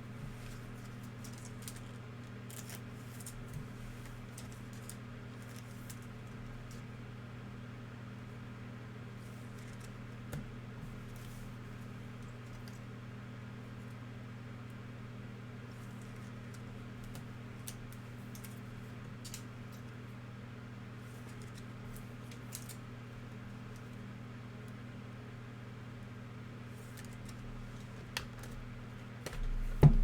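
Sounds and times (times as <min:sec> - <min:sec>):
steady low hum: 0:00.0 - 0:30.0
card packs crinkling and clicking: 0:00.4 - 0:06.8.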